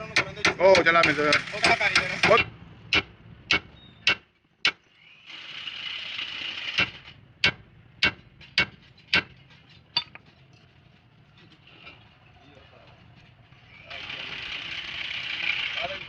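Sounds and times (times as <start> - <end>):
hammer striking metal: 0.0 - 4.8, 6.8 - 9.4, 10.0 - 10.2.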